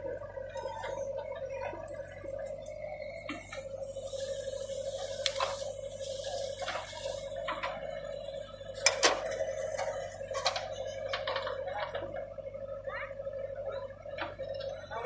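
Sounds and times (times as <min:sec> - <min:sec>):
digger machine whine: 0:00.0 - 0:15.0.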